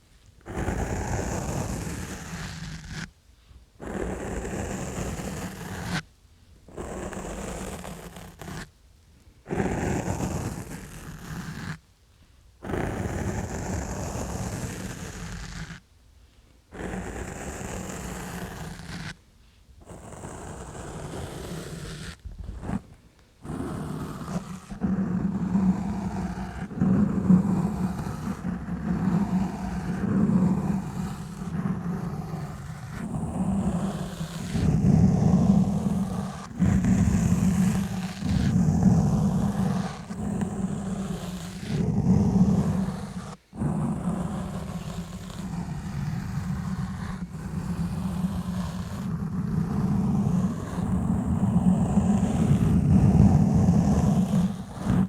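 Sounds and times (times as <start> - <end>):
gloves scrubbing on microphone: 19.9 - 43.4.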